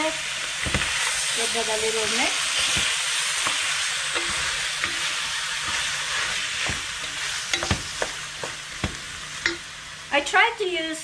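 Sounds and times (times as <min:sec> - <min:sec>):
sauce sizzling in a pan: 0:00.0 - 0:11.0
utensil knocking against pan: 0:07.5 - 0:09.6.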